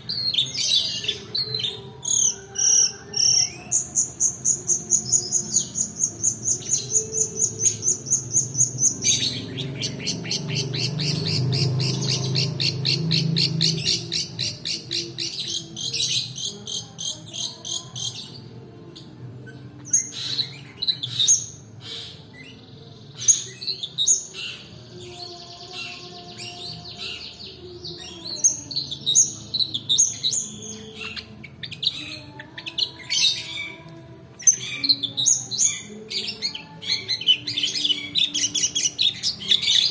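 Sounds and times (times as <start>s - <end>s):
bird trilling: 0.0s - 18.5s
bird chirps and calls: 0.0s - 39.9s.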